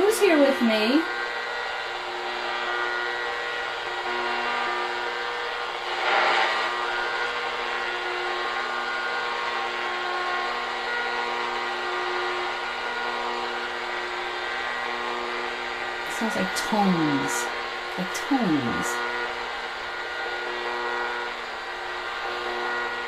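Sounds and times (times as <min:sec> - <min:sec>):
steady radio tones: 0:00.0 - 0:08.4, 0:15.0 - 0:23.0
radio static hiss: 0:04.0 - 0:08.3, 0:16.0 - 0:19.7.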